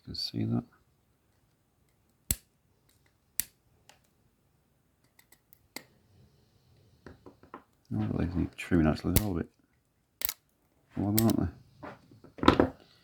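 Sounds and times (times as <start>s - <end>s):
side cutters snipping wire: 9.1s - 9.4s, 10.2s - 10.4s, 11.2s - 11.4s.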